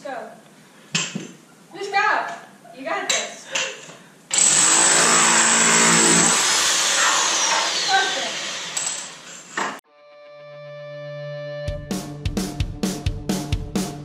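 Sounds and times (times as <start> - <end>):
electric jackhammer chiseling tile: 4.3 - 9.6
music: 9.8 - 14.0.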